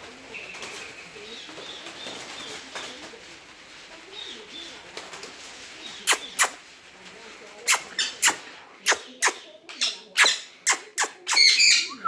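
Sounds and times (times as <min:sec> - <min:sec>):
parrot whistling and chirping: 0:10.2 - 0:12.0.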